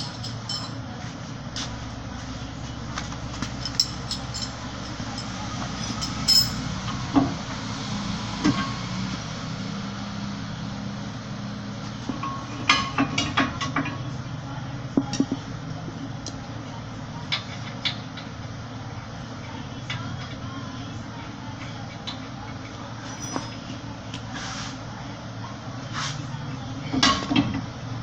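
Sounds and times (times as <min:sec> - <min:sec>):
tools clinking on metal: 0:00.0 - 0:00.8, 0:03.4 - 0:06.7
steady low hum: 0:00.0 - 0:08.4, 0:09.2 - 0:28.0.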